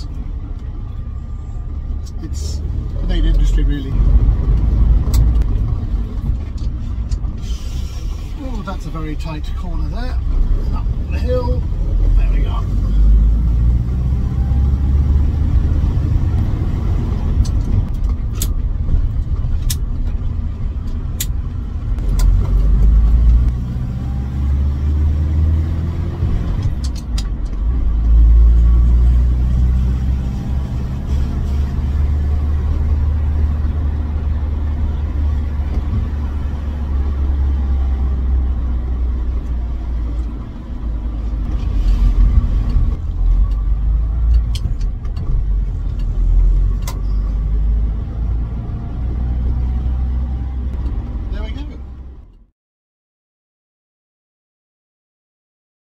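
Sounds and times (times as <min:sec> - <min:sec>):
car engine and road noise: 0:00.0 - 0:52.5
sharp clicks: 0:19.2 - 0:19.9.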